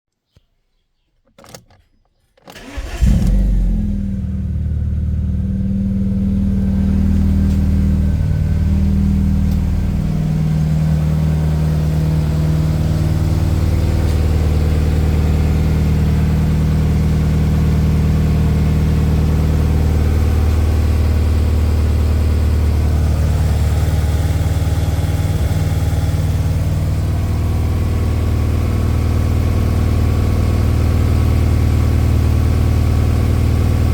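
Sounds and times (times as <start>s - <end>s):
car engine starting and idling: 2.4s - 33.9s.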